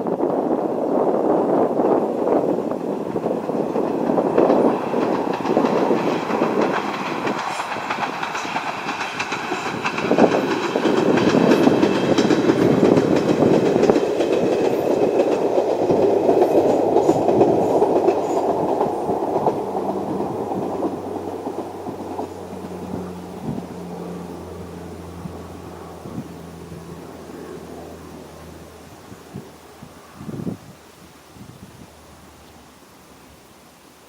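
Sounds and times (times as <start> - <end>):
train wheels clattering over rail joints: 0.1 - 28.4.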